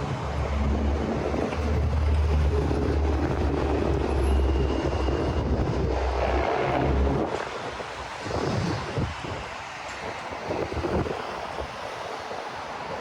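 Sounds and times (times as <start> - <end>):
passing vehicle engine rumble: 0.0 - 9.2
general traffic noise: 0.0 - 12.7.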